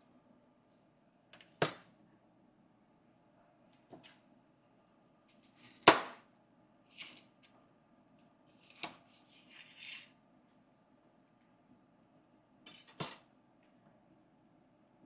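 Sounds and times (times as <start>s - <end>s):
kitchen utensils clattering: 12.7s - 13.2s.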